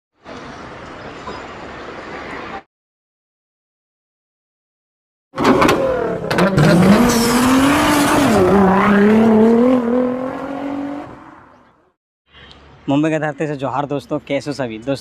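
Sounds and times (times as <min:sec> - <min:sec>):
car engine revving: 0:05.4 - 0:11.6.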